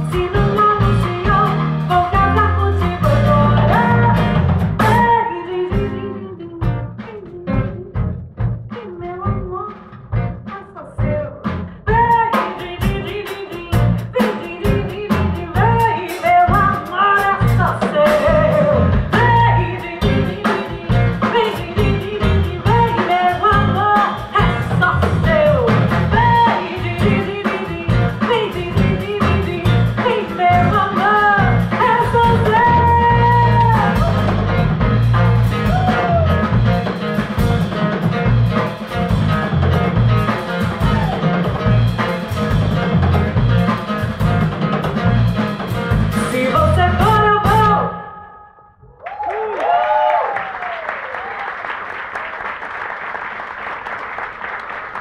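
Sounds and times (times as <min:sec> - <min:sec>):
woman singing lead: 0:00.0 - 0:34.6, 0:46.1 - 0:48.6
live band playing: 0:00.0 - 0:48.2.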